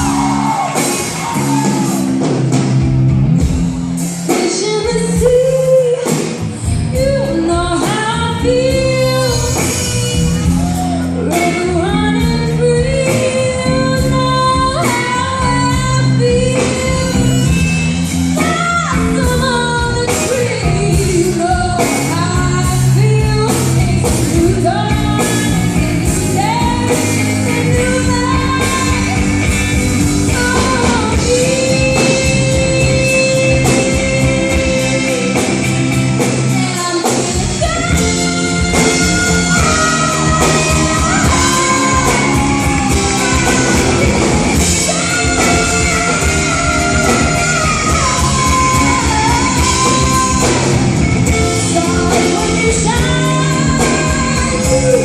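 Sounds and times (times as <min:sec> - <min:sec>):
electric guitar: 0:00.0 - 0:55.0
live rock band playing: 0:00.0 - 0:55.0
person singing: 0:18.4 - 0:55.0.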